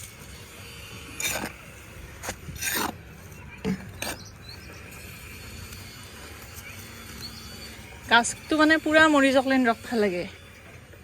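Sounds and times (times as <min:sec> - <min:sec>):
hands digging through soil: 0:01.2 - 0:04.7.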